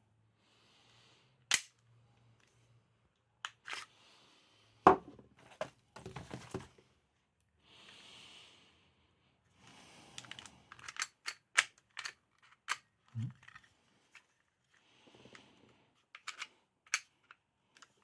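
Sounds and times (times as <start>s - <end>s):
pistol clicking and clacking: 1.5s - 1.8s, 10.8s - 12.8s.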